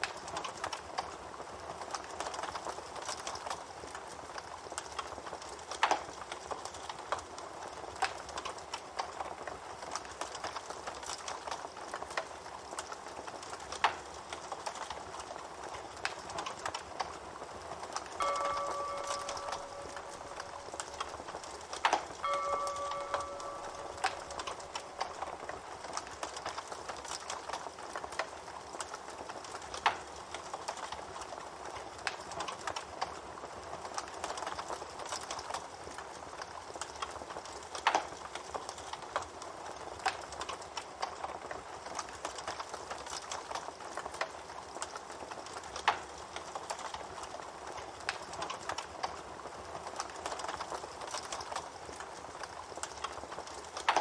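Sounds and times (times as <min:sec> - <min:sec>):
wood campfire crackling: 0:00.0 - 0:54.0
sharp pops from fire: 0:04.7 - 0:17.2.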